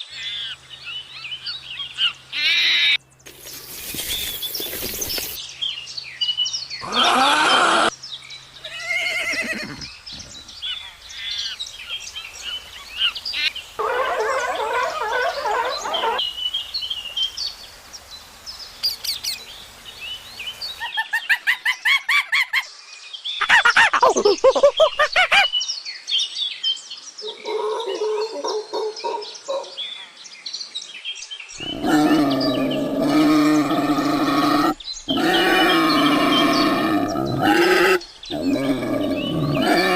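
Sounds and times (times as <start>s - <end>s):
bird calls and chirps: 0.0s - 7.3s, 7.9s - 39.9s
animal calls: 6.8s - 7.9s, 13.4s - 16.2s, 31.6s - 39.9s.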